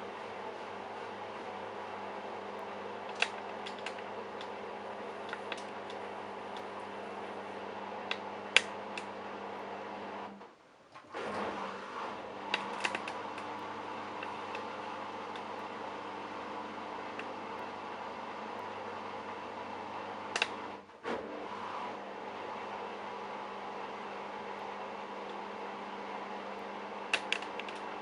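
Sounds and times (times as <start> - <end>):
washing machine running: 0.0 - 28.0
light clicks: 27.1 - 27.9.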